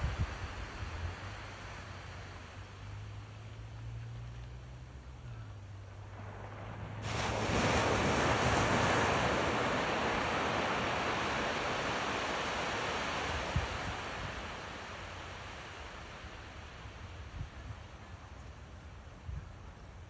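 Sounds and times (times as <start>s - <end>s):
wind rumble on microphone: 0.0s - 20.0s
ocean wave breaking: 5.9s - 17.2s
surf washing on sand: 5.9s - 19.3s.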